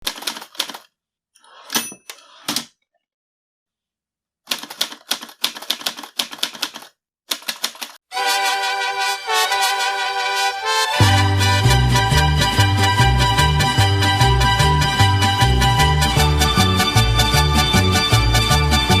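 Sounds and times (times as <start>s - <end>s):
typewriter keys clacking: 0.0s - 0.9s, 4.5s - 8.0s
music with sustained notes: 8.1s - 19.0s.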